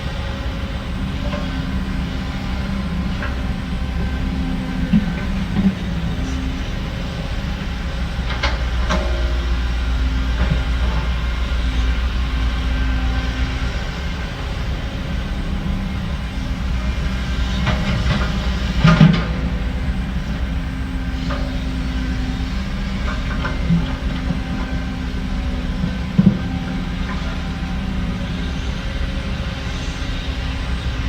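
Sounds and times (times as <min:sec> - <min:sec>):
heavy diesel machinery rumbling: 0:00.0 - 0:31.0.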